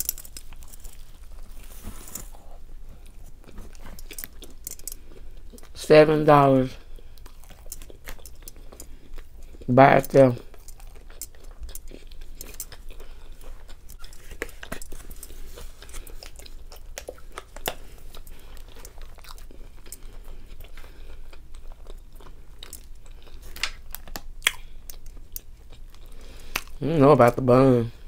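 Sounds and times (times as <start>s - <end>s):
person chewing food: 0.0s - 5.8s, 6.4s - 26.9s
crunchy bites: 7.1s - 26.8s.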